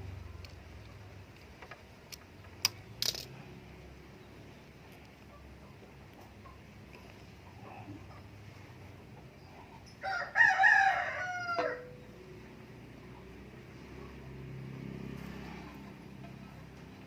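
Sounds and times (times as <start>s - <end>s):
rooster crowing: 10.0s - 12.1s.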